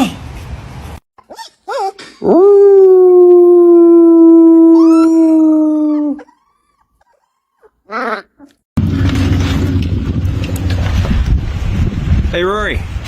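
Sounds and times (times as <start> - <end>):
dog yipping: 1.2 - 2.2, 5.9 - 8.6
dog howling: 1.7 - 8.3.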